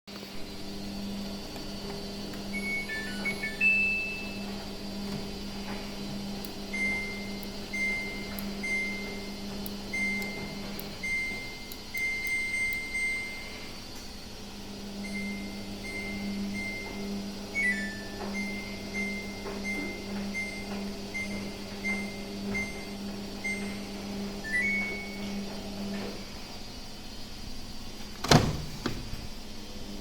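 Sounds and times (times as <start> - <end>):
steady low hum: 0.1 - 30.0
washing machine jingle: 2.5 - 4.7, 17.6 - 25.6.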